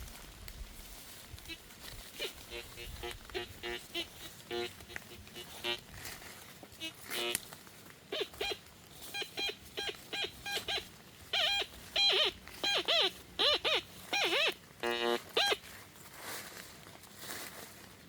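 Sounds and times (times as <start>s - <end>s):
metal detector beeping: 2.2s - 5.8s, 6.8s - 7.4s, 8.1s - 15.6s.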